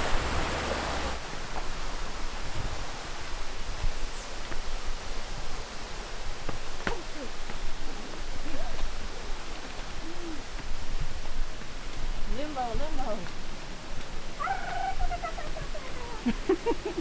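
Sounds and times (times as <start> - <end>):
creek and waterfall rushing: 0.0 - 17.0.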